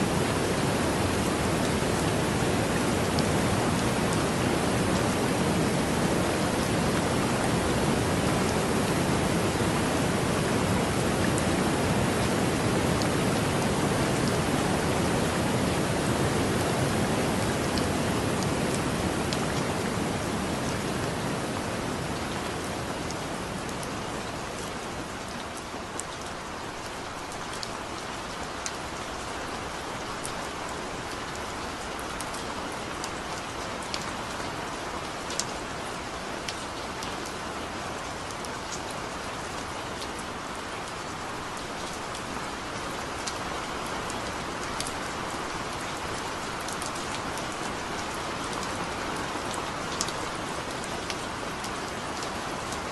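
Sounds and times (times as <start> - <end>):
heavy rain hissing: 0.0 - 23.5
raindrops ticking close by: 22.2 - 52.9.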